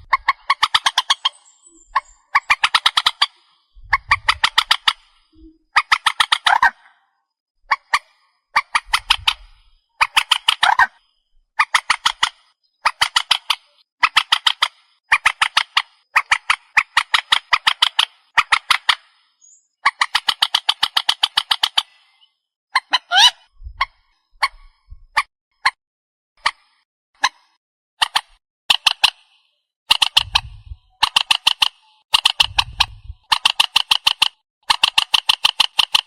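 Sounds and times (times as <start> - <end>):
bird rattling call: 0.0 - 6.9, 7.7 - 22.2, 28.0 - 29.3, 29.9 - 36.0.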